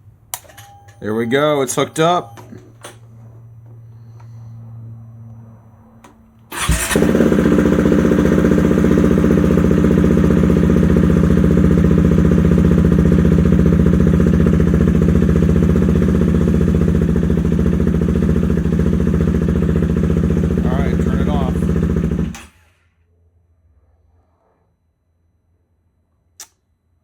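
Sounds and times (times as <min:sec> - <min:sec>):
motorcycle engine starting: 0:00.3 - 0:03.0, 0:06.0 - 0:22.8
motorcycle engine idling: 0:06.6 - 0:22.5.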